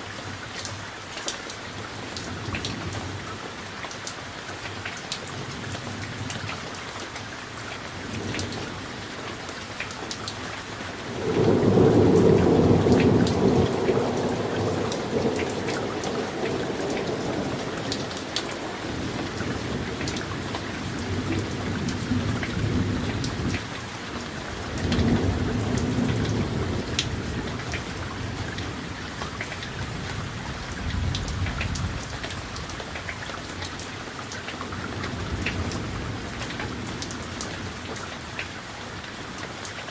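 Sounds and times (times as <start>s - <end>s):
steady rain: 0.0s - 39.9s
rolling thunder: 11.1s - 23.7s, 24.5s - 29.1s.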